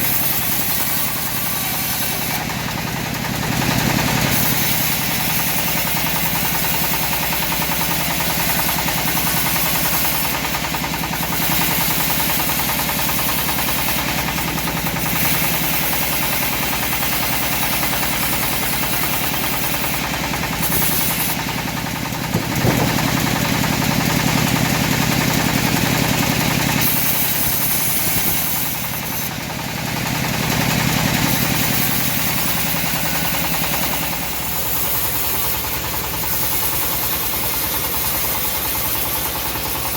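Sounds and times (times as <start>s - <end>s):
bandsaw mill sawing wood: 0.0s - 39.9s
sharp knock: 22.3s - 23.4s.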